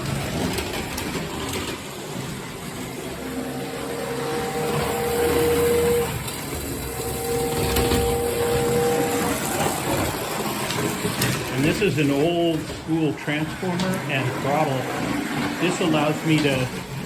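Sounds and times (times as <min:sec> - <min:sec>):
motor humming and whining: 0:00.0 - 0:17.0.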